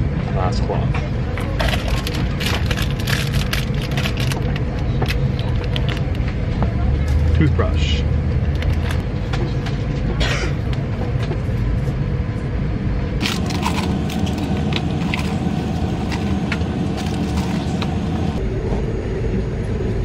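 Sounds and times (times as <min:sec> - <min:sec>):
airliner cabin rumble: 0:00.0 - 0:20.0
plastic packaging crinkling: 0:01.6 - 0:06.2, 0:13.2 - 0:18.4.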